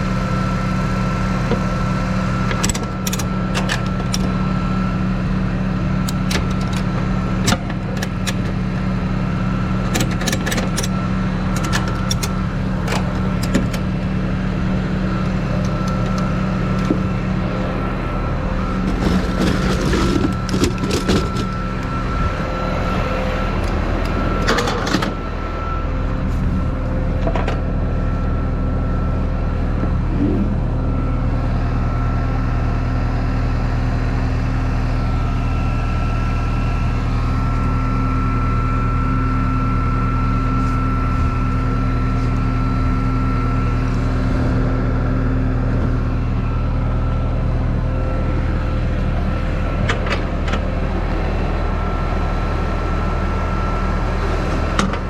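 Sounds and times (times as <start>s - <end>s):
truck engine idling: 0.0s - 55.0s
knocks and rattles: 18.8s - 21.6s.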